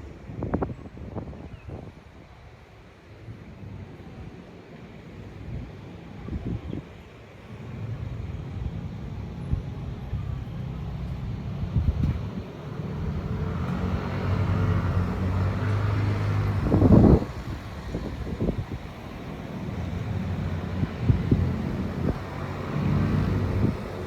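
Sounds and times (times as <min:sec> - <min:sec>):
vehicle engine passing: 0:07.6 - 0:24.0.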